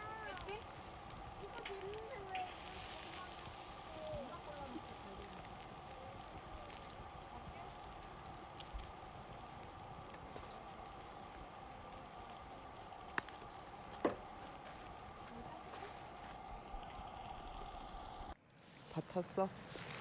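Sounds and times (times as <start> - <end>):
meat sizzling in a pan: 0.0 - 18.4.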